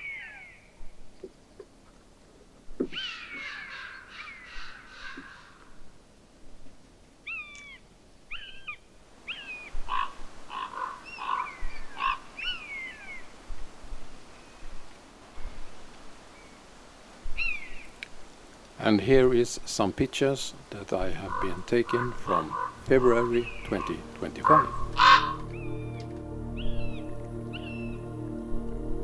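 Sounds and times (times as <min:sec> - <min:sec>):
bird harsh rasping calls: 0:07.3 - 0:13.2, 0:21.1 - 0:26.0
bird mewing whistled calls: 0:21.3 - 0:26.0.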